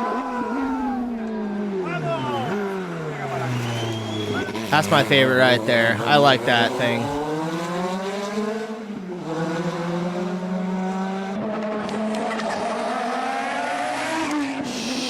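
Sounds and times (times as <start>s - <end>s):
car engine revving: 2.5s - 12.2s.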